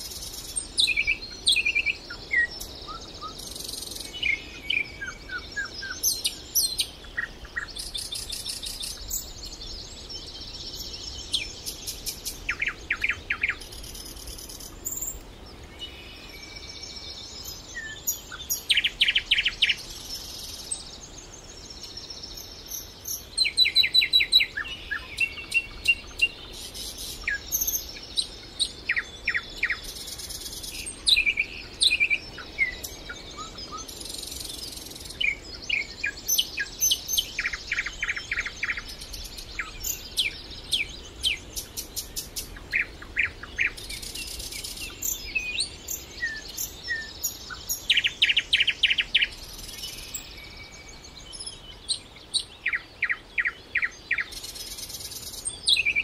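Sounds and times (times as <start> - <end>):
faint steady hiss: 0.0 - 56.0
songbirds singing: 0.0 - 56.0.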